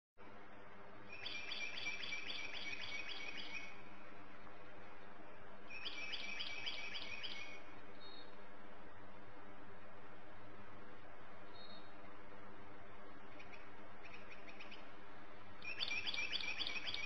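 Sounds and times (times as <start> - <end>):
steady low hum: 0.2 - 17.0
songbird singing: 1.0 - 4.6, 5.2 - 8.6, 11.4 - 12.2, 13.1 - 17.0.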